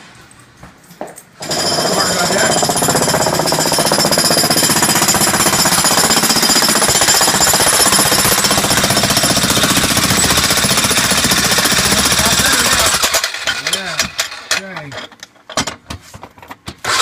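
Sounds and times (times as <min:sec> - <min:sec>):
jackhammer breaking concrete: 0:01.4 - 0:14.7.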